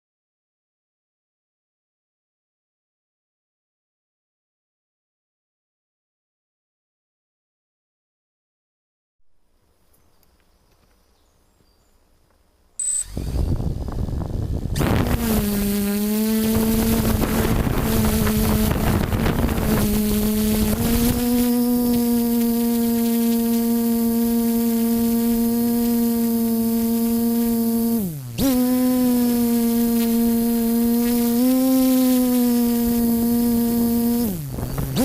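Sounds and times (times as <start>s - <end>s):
short high beep: 12.8s - 13.2s
drone motors buzzing: 12.8s - 35.0s.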